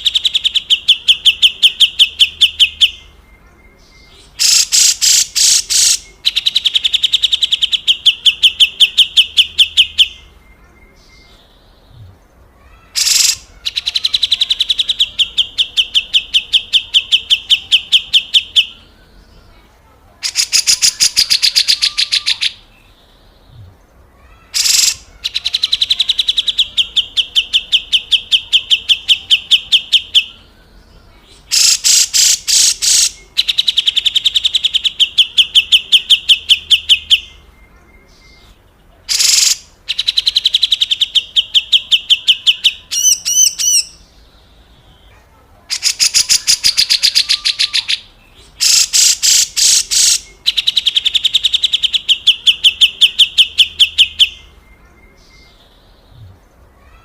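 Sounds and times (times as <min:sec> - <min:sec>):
bird giving harsh rasping call: 0:04.2 - 0:10.2, 0:12.6 - 0:18.7, 0:20.2 - 0:22.6, 0:24.2 - 0:30.3, 0:31.4 - 0:37.2, 0:39.1 - 0:44.0, 0:45.7 - 0:54.1
bird warbled phrase: 0:11.9 - 0:19.0, 0:20.2 - 0:22.7, 0:23.6 - 0:30.4, 0:45.1 - 0:54.6.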